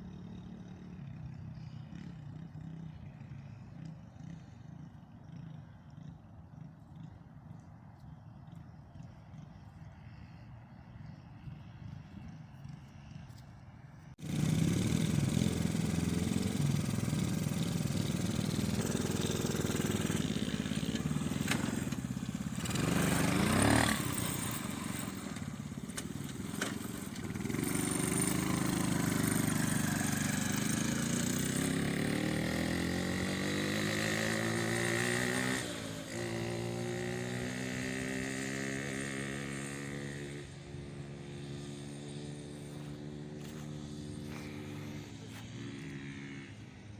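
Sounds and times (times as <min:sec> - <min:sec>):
small engine revving: 0:14.2 - 0:46.9.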